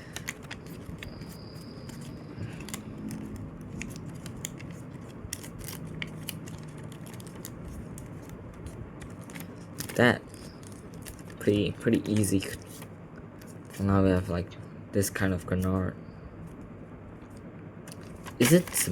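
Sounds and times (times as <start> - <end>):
paper folding and rustling: 0.0 - 13.9, 17.9 - 18.9.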